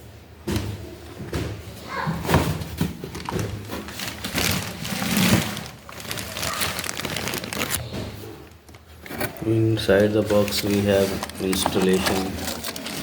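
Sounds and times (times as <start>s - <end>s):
packaging knocks and thumps: 0.4s - 13.0s
packaging rustling: 2.7s - 13.0s.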